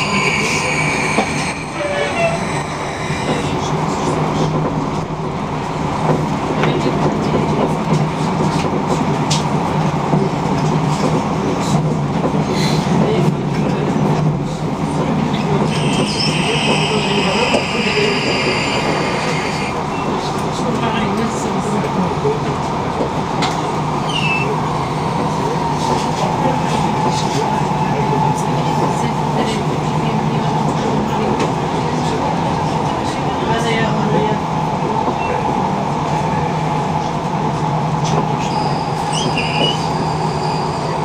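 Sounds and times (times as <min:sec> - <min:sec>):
high-pitched squeal: 0:00.0 - 0:04.1, 0:15.7 - 0:19.8
train wheels rumbling on rails: 0:00.0 - 0:41.0.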